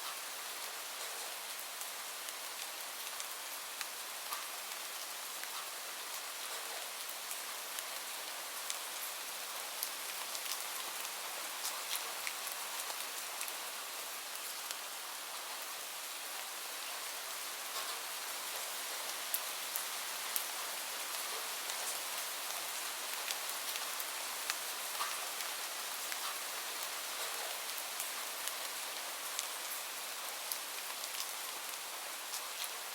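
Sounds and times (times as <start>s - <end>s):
steady rain hiss: 0.0s - 32.9s
raindrop ticks: 24.5s - 25.2s.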